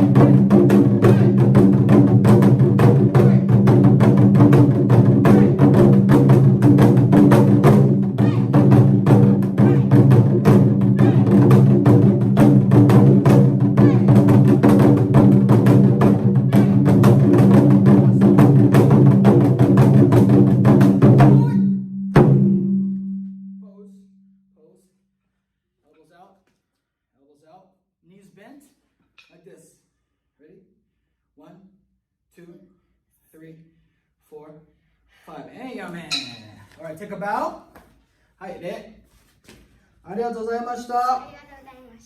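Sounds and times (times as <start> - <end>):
taiko drums in a fast rhythm: 0.0 - 22.9.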